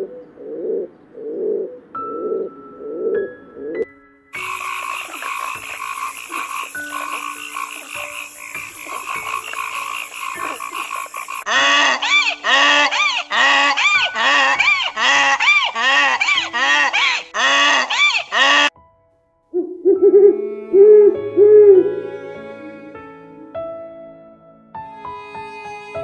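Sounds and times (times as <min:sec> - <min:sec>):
donkey braying: 0:04.4 - 0:18.7
frog croaking: 0:04.4 - 0:18.7.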